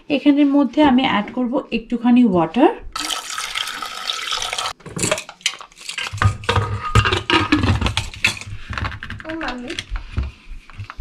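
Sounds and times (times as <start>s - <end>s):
water pouring into a pot: 3.0s - 4.8s.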